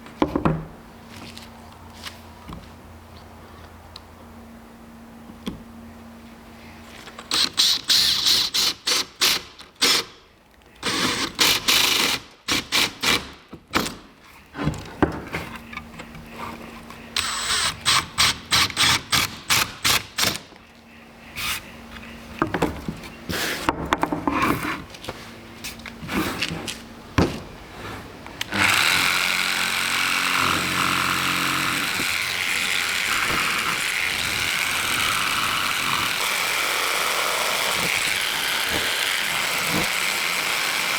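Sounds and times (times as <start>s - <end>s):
power tools running: 10.8s - 14.0s, 14.6s - 23.7s, 28.3s - 40.9s.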